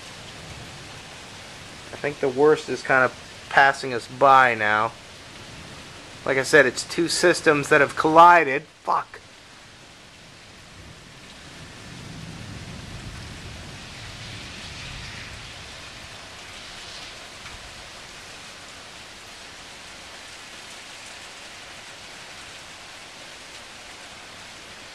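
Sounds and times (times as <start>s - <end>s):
steady rain hiss: 0.0s - 24.9s
low thunder rumble: 10.7s - 18.3s.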